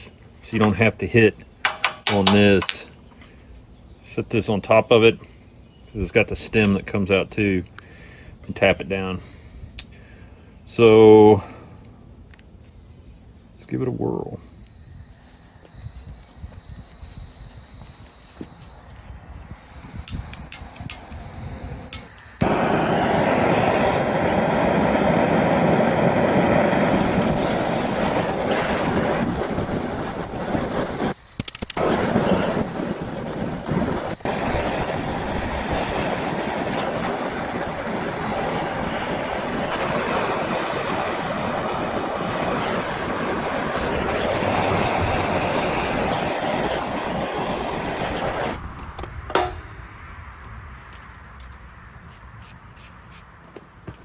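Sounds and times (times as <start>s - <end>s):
gas torch flame burning: 0.0s - 5.0s, 14.2s - 49.6s.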